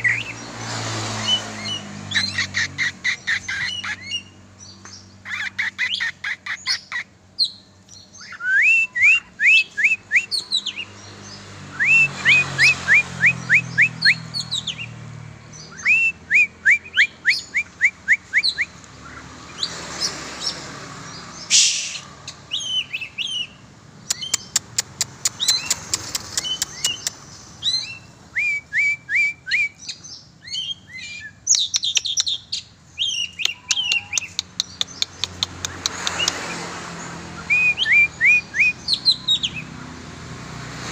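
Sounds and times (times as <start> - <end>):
bird singing whistled notes: 6.7 - 10.9, 15.5 - 19.7, 21.4 - 24.6, 26.4 - 35.1, 37.3 - 39.7
quick rattle of ticks: 24.1 - 27.2.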